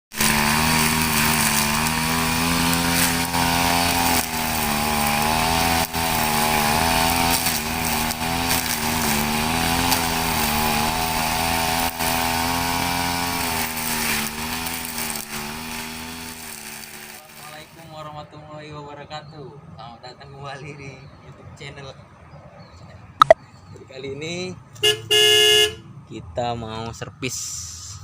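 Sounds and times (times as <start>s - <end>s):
brush cutter engine running: 0.1s - 17.8s.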